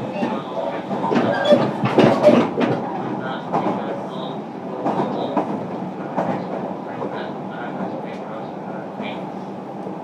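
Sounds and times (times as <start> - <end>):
wheels clacking over rail joints: 0.0 - 4.0
electric train rumbling: 0.0 - 10.0.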